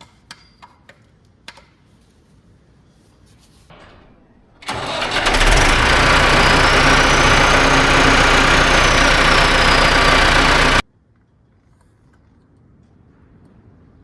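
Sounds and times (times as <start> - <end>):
diesel tractor engine starting: 3.7 - 10.8.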